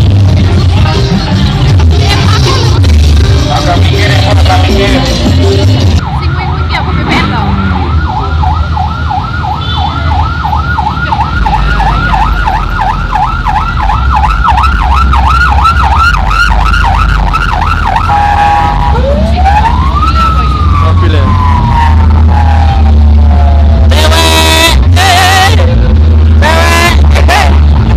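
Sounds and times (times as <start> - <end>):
siren yelping: 5.9 - 27.6.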